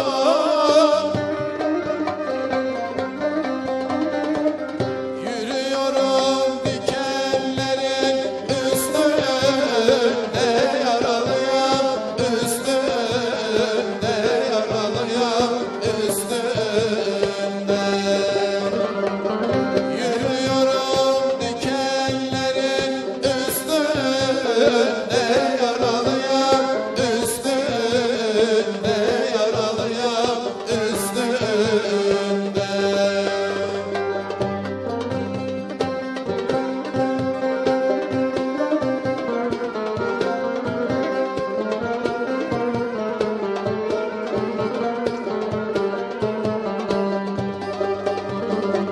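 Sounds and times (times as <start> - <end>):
person singing: 5.2 - 19.2, 19.8 - 34.4.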